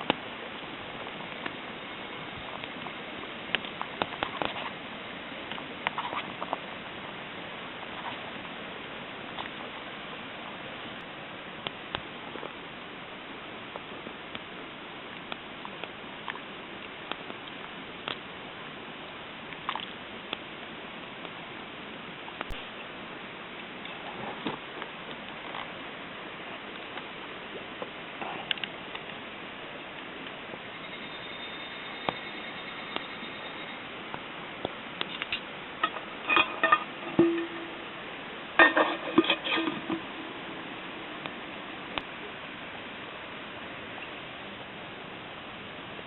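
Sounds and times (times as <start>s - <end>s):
campfire crackling: 10.9s - 30.5s
metal cookware clinking and knocking: 35.8s - 37.8s, 38.6s - 40.1s.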